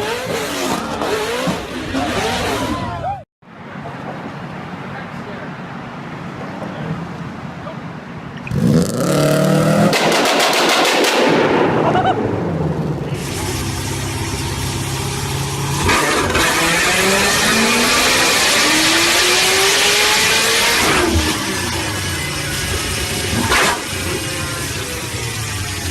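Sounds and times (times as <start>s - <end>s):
engine revving with crackles and pops: 0.0s - 2.9s, 8.4s - 25.9s
engine pulling hard rising pitch: 0.0s - 3.2s, 8.5s - 25.9s.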